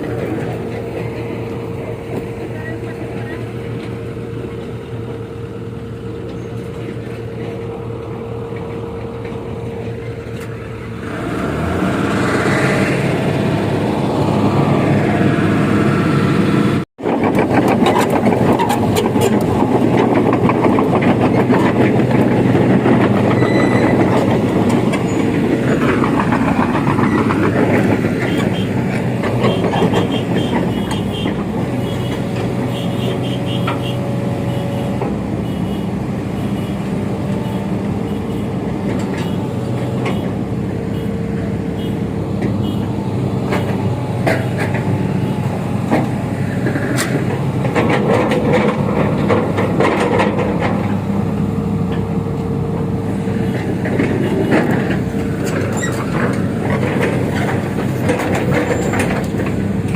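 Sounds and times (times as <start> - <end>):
excavator diesel engine running: 0.0 - 59.9
metal clanks and knocks: 43.4 - 45.1, 45.9 - 51.1, 53.6 - 59.9.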